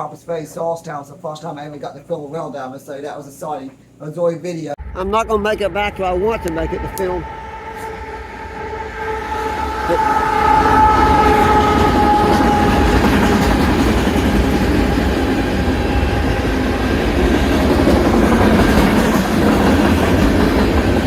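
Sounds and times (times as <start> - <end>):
freight train rumbling past: 4.8 - 21.0
train horn: 6.2 - 20.1
wheels clacking on rail: 10.0 - 21.0.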